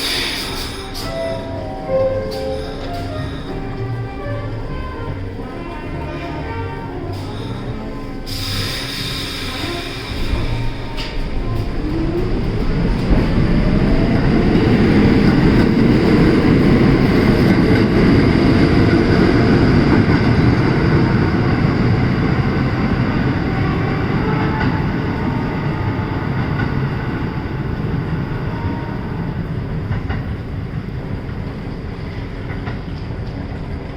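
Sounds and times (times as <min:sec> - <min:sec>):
subway train rumble and wheel clatter: 0:00.0 - 0:33.9.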